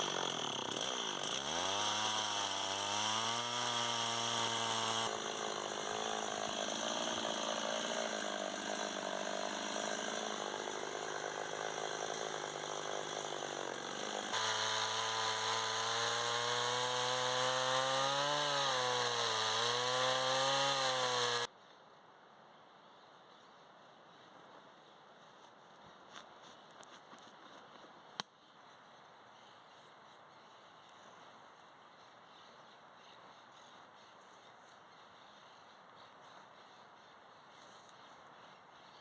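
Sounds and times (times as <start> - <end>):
chainsaw cutting wood: 0.0 - 21.5.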